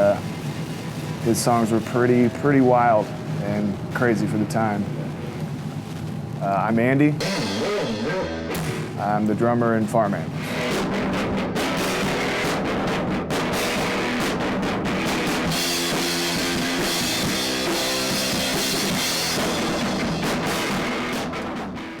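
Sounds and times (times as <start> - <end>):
rock music with drum kit: 0.0 - 4.0, 7.2 - 9.4, 10.2 - 22.0
cymbal wash: 0.0 - 4.8, 7.2 - 9.4.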